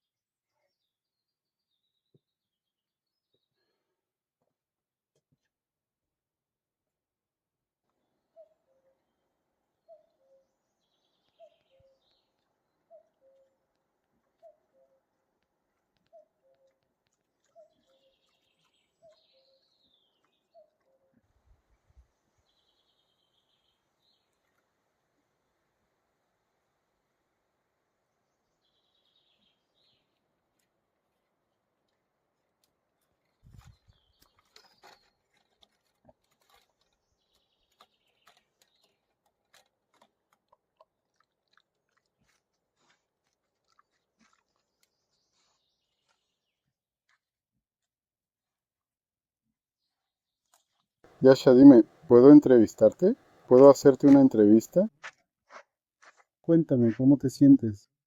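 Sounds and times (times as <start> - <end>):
faint clicks and crunching: 11.2 - 21.8, 30.0 - 47.9, 50.4 - 51.2.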